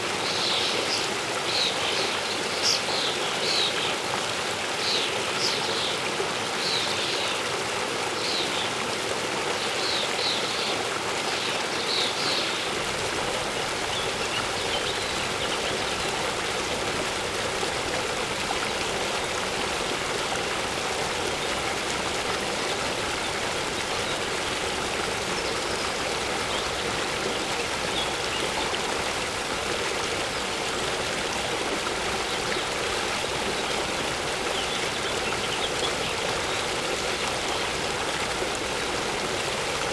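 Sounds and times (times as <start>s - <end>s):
waterfall rushing: 12.5s - 39.9s
birds chirping: 12.8s - 37.8s.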